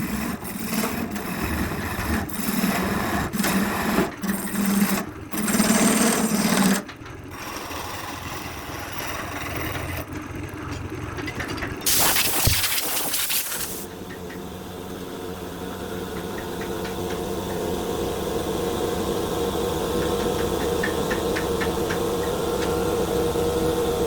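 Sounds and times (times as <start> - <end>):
hissing noise: 11.9 - 13.9
small electric motor humming: 11.9 - 24.0.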